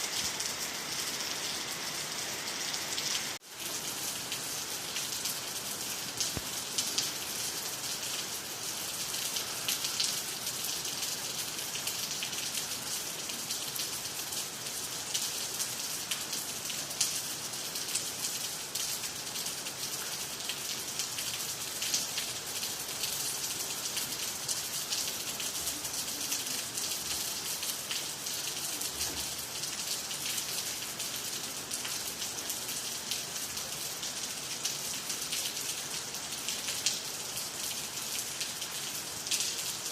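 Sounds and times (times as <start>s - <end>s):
steady rain falling: 0.0s - 39.9s
close raindrop ticks: 6.1s - 7.2s.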